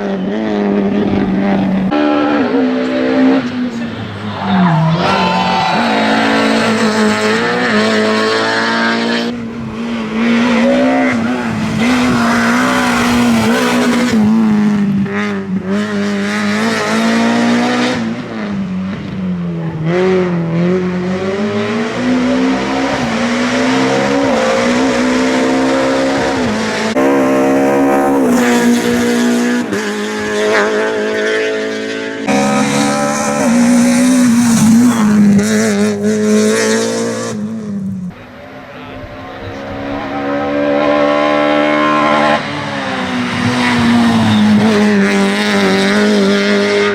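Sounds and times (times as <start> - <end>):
rally car engine revving: 0.0 - 46.9.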